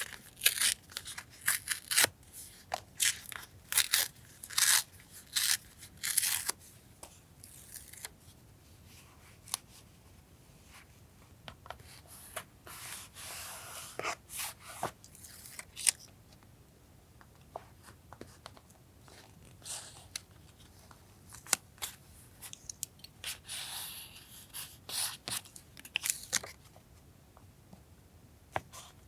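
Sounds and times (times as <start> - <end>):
scissors cutting paper: 0.0 - 2.1, 3.0 - 6.5.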